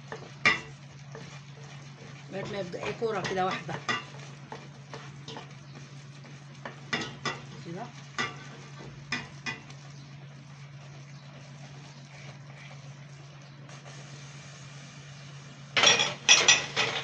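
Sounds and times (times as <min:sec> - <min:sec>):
spoon stirring thick dough: 0:00.0 - 0:13.3
faint hiss: 0:13.7 - 0:15.5.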